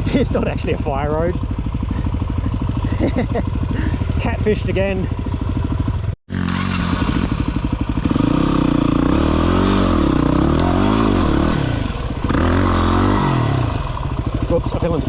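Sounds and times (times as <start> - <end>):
dirt bike engine revving: 5.1 - 15.0.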